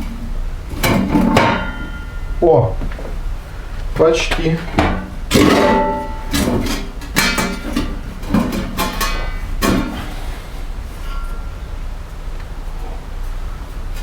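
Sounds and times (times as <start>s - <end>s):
stovepipe clanking and scraping: 0.0s - 3.2s, 3.8s - 11.9s
ringing metallic knocks: 0.8s - 3.0s, 4.8s - 10.1s.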